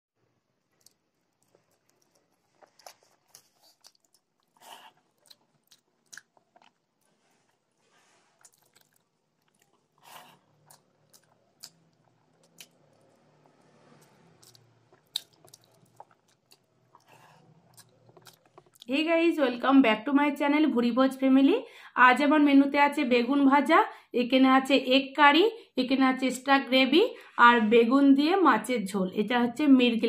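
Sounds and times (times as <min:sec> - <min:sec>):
person chewing and biting: 0:00.7 - 0:18.9
small crunches: 0:00.7 - 0:18.9
wet mouth clicks: 0:08.4 - 0:18.9.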